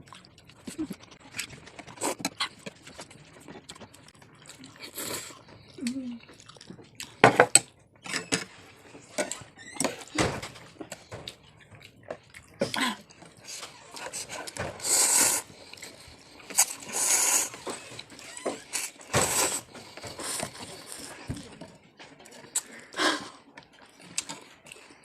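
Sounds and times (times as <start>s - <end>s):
chewing: 0.0s - 25.0s.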